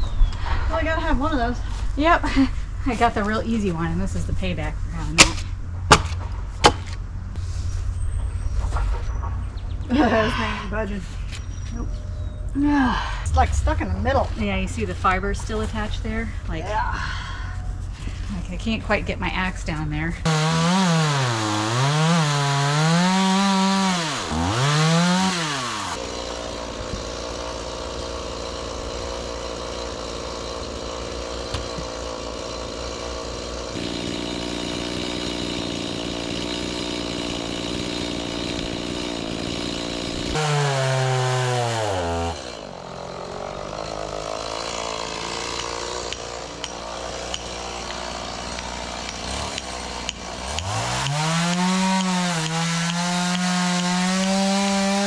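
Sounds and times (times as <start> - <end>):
chainsaw cutting wood: 5.2 - 7.0, 20.2 - 55.0.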